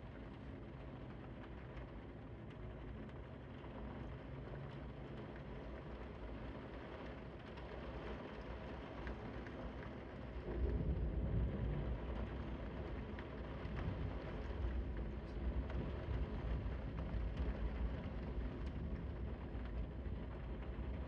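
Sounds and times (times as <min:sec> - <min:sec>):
steady rain: 0:00.0 - 0:21.0
deep low rumble: 0:10.4 - 0:21.0.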